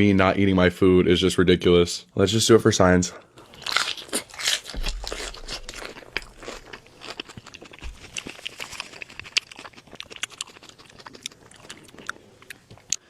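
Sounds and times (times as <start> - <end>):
chewing crispy food: 3.1 - 13.0.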